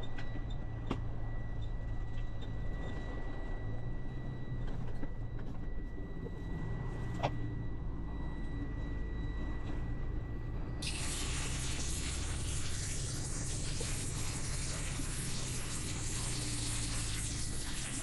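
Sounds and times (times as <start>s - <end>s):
tyre spray hiss: 10.8s - 18.0s.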